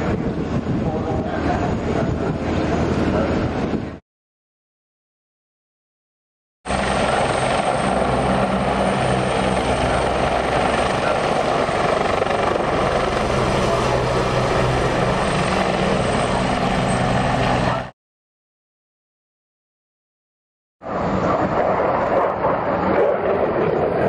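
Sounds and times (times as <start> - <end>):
helicopter engine and rotor: 0.0 - 4.0, 6.7 - 18.0, 20.8 - 24.0.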